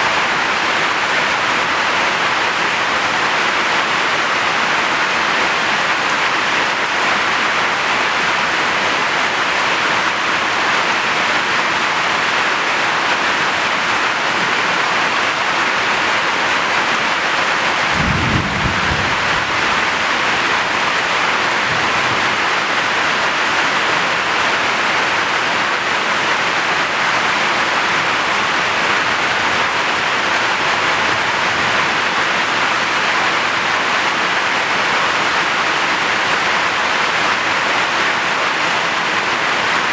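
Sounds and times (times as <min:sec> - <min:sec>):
heavy rain falling: 0:00.0 - 0:39.9
low rumble of thunder: 0:17.9 - 0:20.0.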